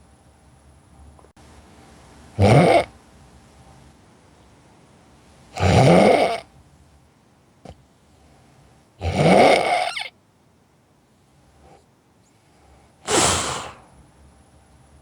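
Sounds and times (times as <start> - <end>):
person snoring: 13.1 - 13.9.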